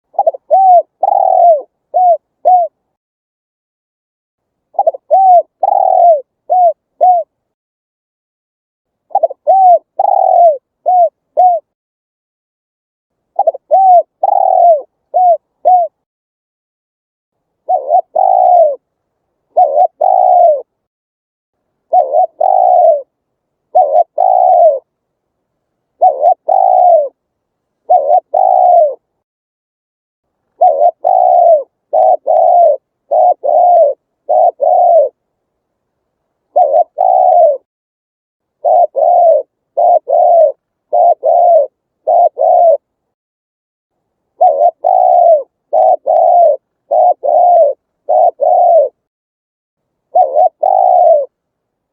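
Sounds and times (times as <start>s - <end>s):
dove cooing: 0.0s - 2.8s, 4.7s - 7.4s, 9.1s - 11.8s, 13.3s - 16.0s, 17.6s - 18.9s, 19.5s - 20.8s, 21.8s - 23.1s, 23.7s - 24.9s, 26.0s - 27.2s, 27.8s - 29.1s, 30.5s - 35.2s, 36.5s - 37.7s, 38.6s - 42.9s, 44.4s - 49.1s, 50.1s - 51.4s.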